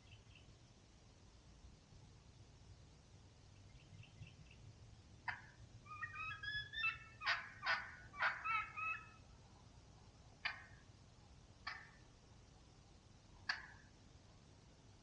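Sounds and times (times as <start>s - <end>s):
turkey call yelps: 5.3s - 9.2s, 10.4s - 10.8s, 11.6s - 12.0s, 13.5s - 13.8s.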